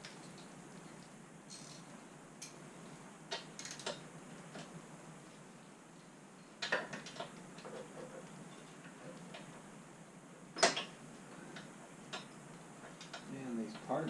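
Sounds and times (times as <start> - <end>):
scooter parts clicking and knocking: 6.6 - 8.3.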